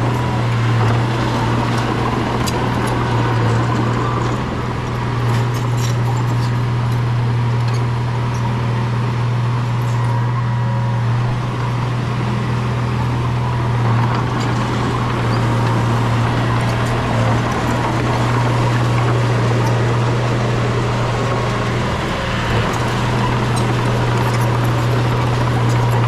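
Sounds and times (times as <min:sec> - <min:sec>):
bulldozer diesel engine drone: 0:00.0 - 0:26.0.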